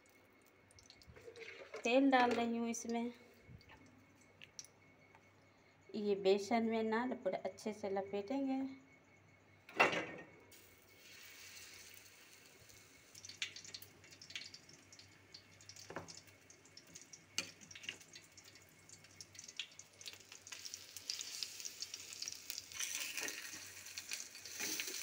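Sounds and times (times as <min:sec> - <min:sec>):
fish frying with pops and crackles: 0:10.6 - 0:25.0.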